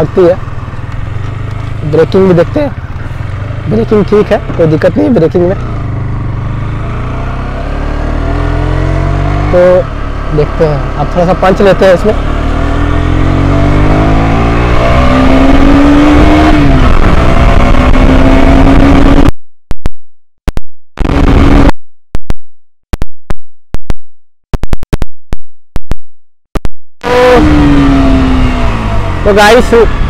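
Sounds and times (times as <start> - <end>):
motorcycle engine accelerating: 0.0 - 19.3, 21.0 - 21.7, 27.0 - 30.0.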